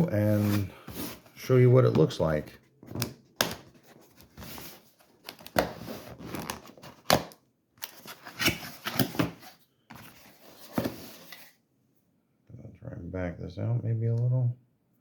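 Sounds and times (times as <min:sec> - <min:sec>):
cardboard and plastic rustling: 0:02.8 - 0:11.6.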